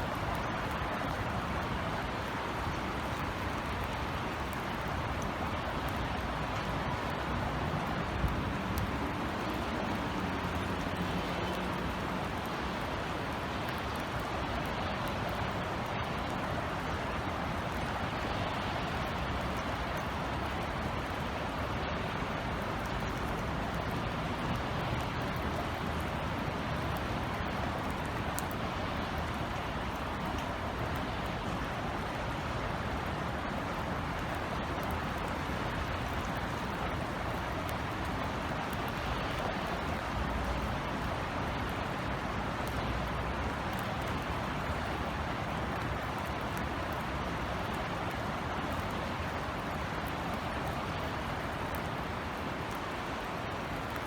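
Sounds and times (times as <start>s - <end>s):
distant city traffic rumble: 0.0s - 54.0s
steady rain hiss: 0.0s - 54.0s.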